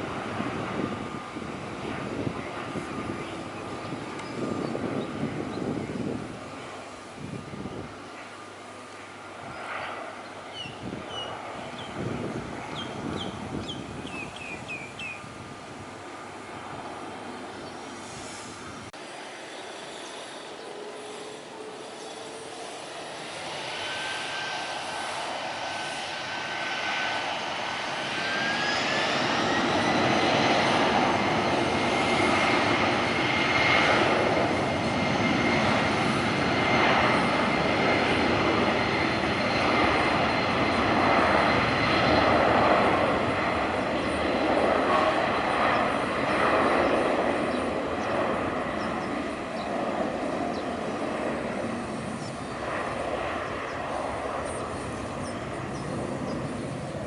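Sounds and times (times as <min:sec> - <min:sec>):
jet engines spooling up: 0:11.6 - 0:57.0.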